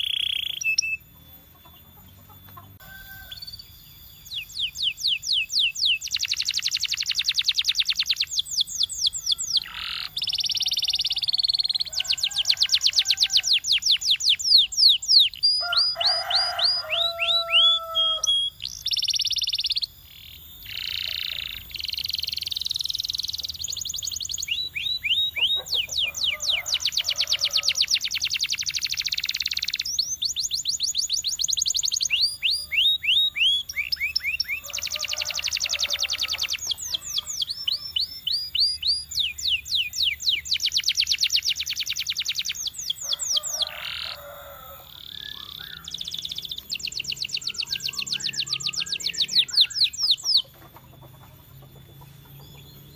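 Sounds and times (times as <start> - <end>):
canary singing: 0.0 - 52.9.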